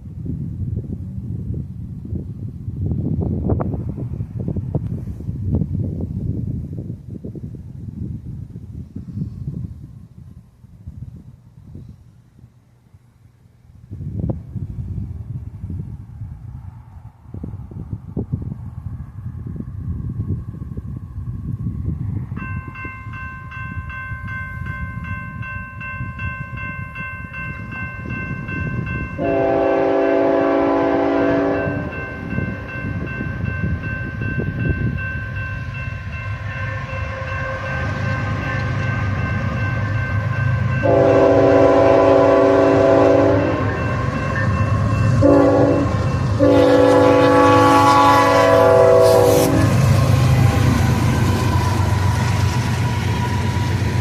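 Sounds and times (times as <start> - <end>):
train rumbling: 0.0 - 54.0
steady high ringing: 22.3 - 29.8, 31.4 - 47.7
locomotive horn: 29.2 - 32.2, 36.4 - 39.0, 39.9 - 50.6.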